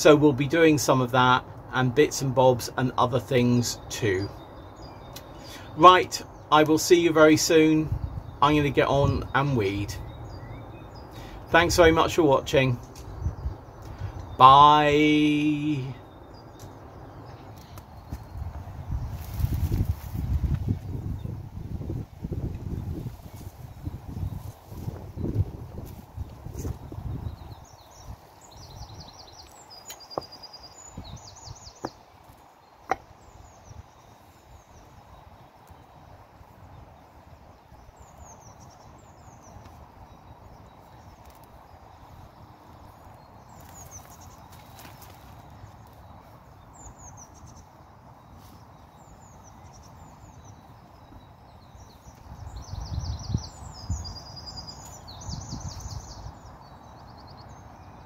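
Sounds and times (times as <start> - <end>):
small birds singing: 0.0 - 58.0
outdoor background hum: 7.8 - 51.2.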